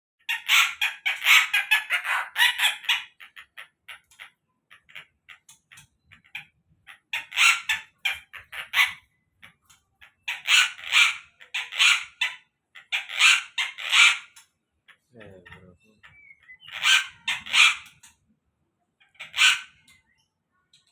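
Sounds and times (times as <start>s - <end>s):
kingfisher harsh cackling calls: 0.3s - 4.0s, 16.7s - 17.9s, 19.2s - 19.7s.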